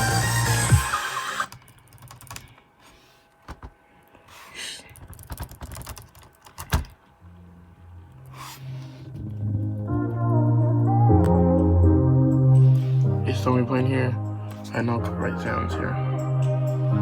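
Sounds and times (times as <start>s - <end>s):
music: 0.0s - 1.5s, 7.2s - 17.0s.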